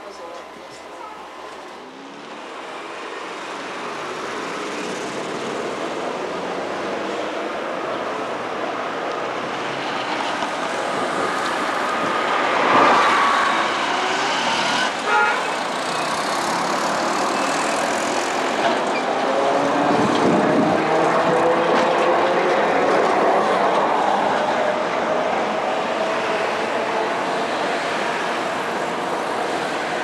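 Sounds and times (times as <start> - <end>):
vehicle running noise: 9.3 - 30.0.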